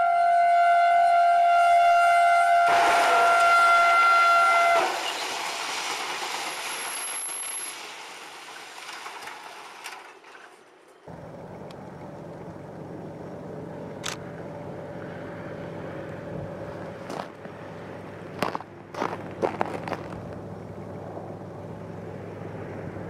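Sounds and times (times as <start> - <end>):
train rushing: 2.4 - 23.0
steady low drone: 11.1 - 23.0
sharp clicks: 14.0 - 14.2.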